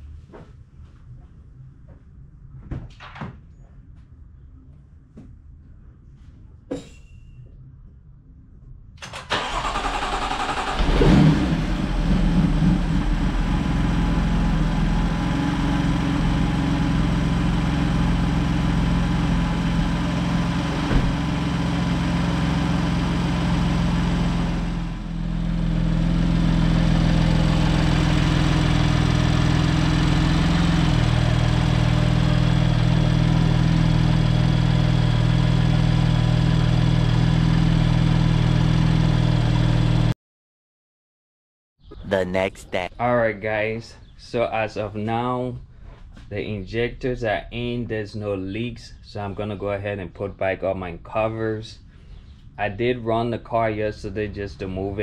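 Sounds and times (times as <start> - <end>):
car engine starting and revving: 9.1 - 40.0.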